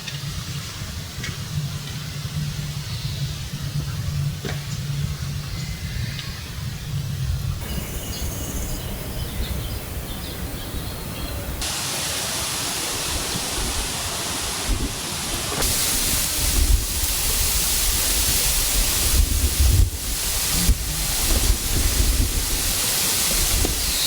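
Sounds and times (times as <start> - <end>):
outdoor noise hiss: 0.0 - 24.0
wind buffeting microphone: 12.8 - 24.0.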